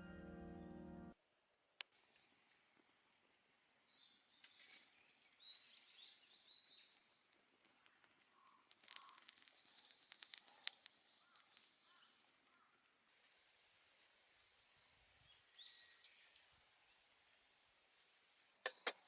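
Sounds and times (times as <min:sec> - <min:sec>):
songbirds chirping: 0:00.0 - 0:19.0
sharp clicks: 0:18.7 - 0:19.0.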